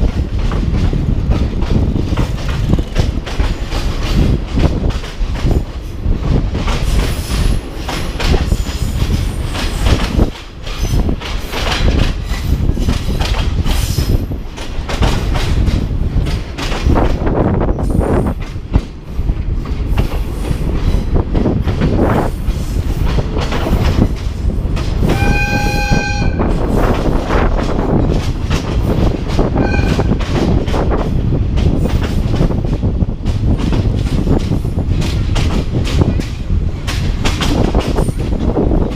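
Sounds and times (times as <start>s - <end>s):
train rumbling over track: 0.0s - 38.9s
train horn: 25.1s - 26.6s, 29.6s - 30.2s.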